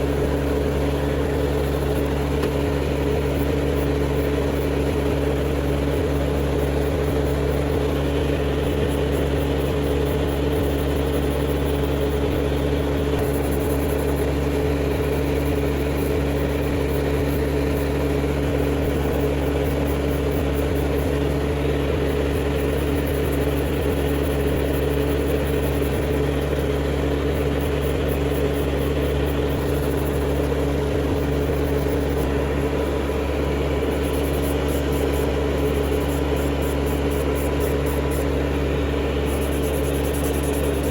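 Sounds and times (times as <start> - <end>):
small electric motor humming: 0.0 - 40.9.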